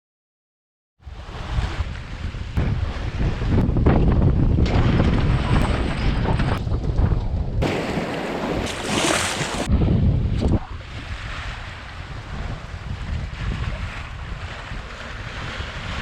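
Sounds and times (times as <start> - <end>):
wind buffeting microphone: 1.0 - 16.0
water rushing past: 7.6 - 9.8.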